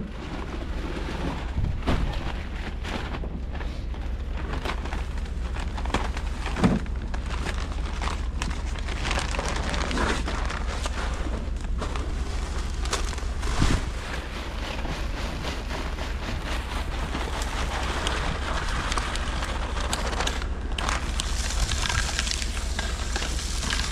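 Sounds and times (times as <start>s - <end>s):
strong wind buffeting microphone: 0.0s - 3.5s, 11.4s - 23.9s
irregular crackles: 2.2s - 23.9s.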